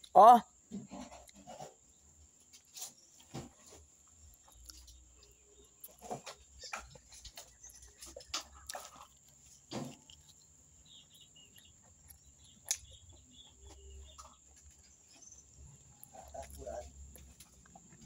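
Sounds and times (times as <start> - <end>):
faint bird chirps: 2.7 - 16.9
person chewing: 4.1 - 6.0, 6.6 - 18.0.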